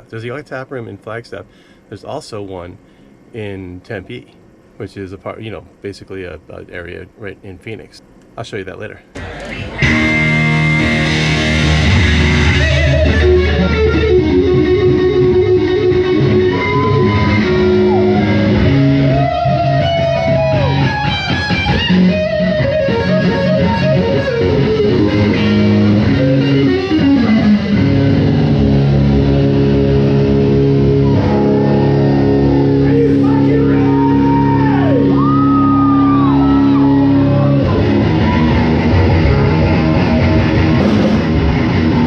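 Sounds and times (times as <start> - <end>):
bass line: 9.2 - 42.0
electric guitar lead with bent notes: 9.2 - 42.0.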